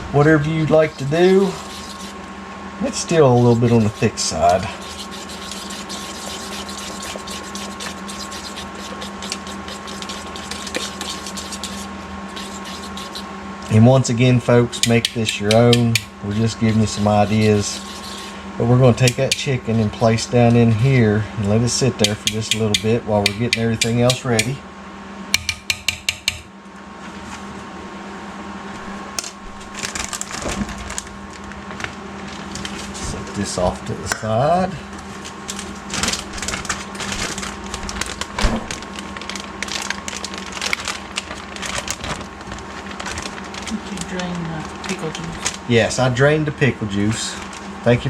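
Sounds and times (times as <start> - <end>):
steady hum: 0.0 - 48.0
batter stirred in a bowl: 1.0 - 2.2, 2.9 - 13.8, 14.7 - 19.6, 22.0 - 24.6.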